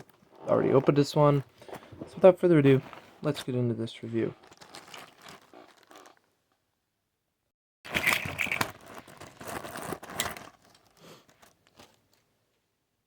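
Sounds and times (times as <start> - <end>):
plastic bag crinkling and tearing: 2.7 - 6.3, 7.9 - 12.0.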